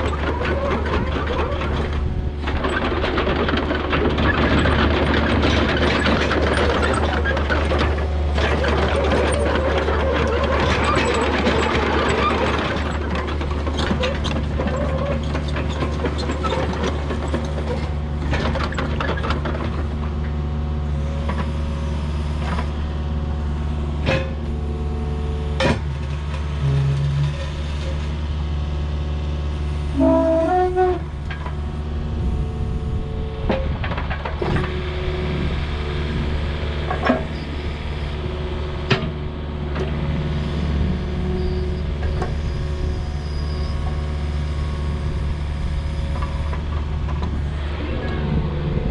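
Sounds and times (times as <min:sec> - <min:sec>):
clanks and knocks: 0:00.0 - 0:20.0
diesel engine running: 0:00.0 - 0:48.9
brief squeal: 0:41.2 - 0:44.8.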